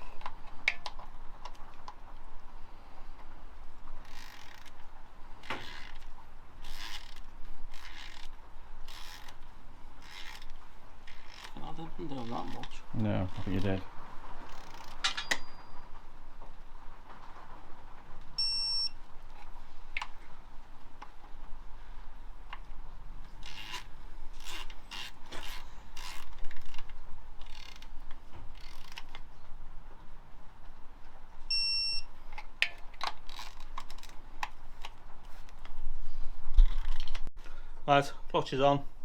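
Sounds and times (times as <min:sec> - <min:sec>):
short electronic beep: 0:18.4 - 0:19.0, 0:31.5 - 0:32.1.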